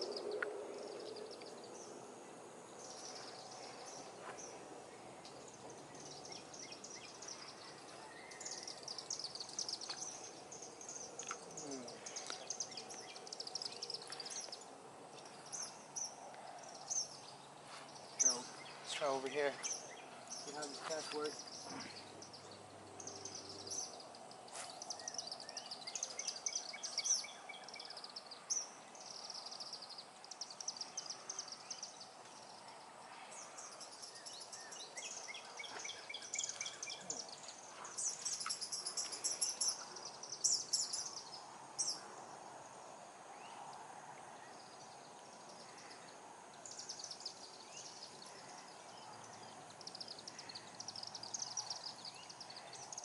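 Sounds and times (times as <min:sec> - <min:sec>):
faint background hiss: 0:00.0 - 0:53.0.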